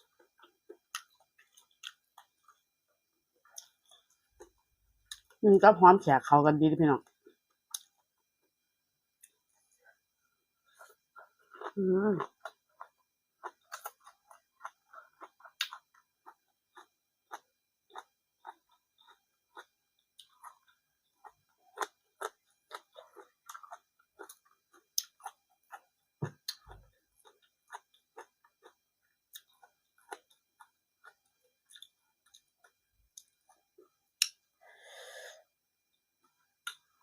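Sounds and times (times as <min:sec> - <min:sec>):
chewing food: 0:00.0 - 0:05.4, 0:10.6 - 0:34.4.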